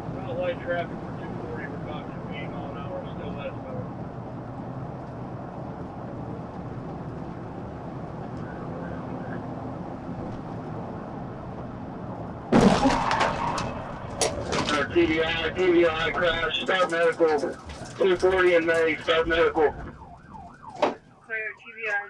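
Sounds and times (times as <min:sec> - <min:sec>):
car road and engine noise: 0:00.0 - 0:22.0
loud car crash: 0:12.5 - 0:16.5.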